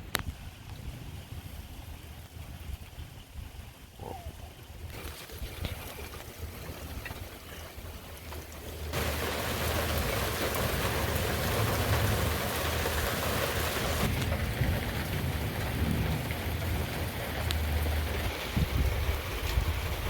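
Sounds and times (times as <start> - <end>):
heavy rain pouring: 4.0 - 20.0
thunder rumbling: 8.8 - 20.0.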